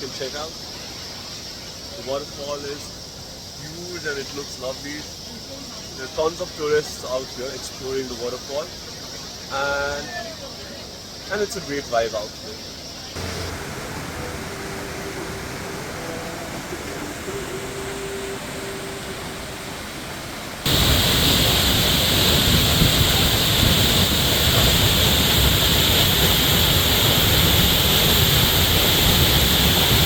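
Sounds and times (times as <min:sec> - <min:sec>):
waterfall roaring: 0:13.2 - 0:30.0.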